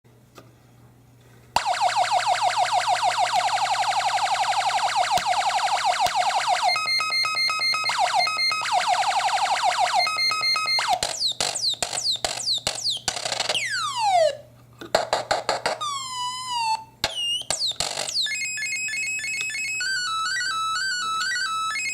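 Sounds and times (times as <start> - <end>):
wavering electronic tone: 1.6 - 14.4, 15.8 - 21.9
electronic chirps: 5.5 - 9.0, 9.8 - 14.3
electronic beeping tones: 9.9 - 14.0.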